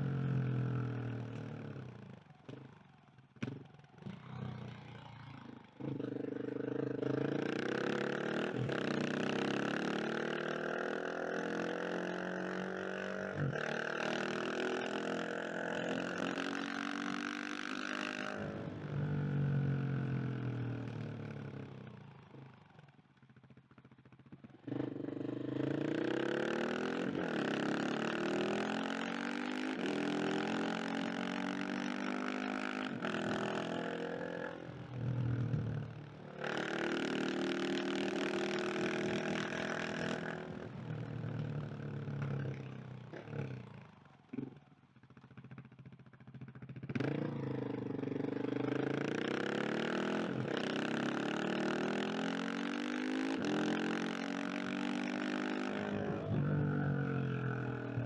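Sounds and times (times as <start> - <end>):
motorcycle engine revving: 45.5 - 58.0.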